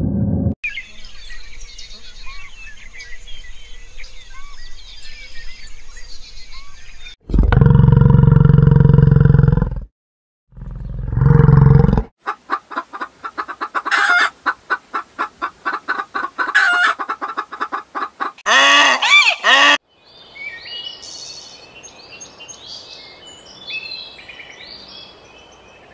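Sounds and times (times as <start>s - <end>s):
small birds chirping: 0.7s - 7.2s, 19.9s - 25.9s
bison bellowing: 7.3s - 9.7s, 10.5s - 12.1s
hen clucking and squawking: 12.2s - 19.8s.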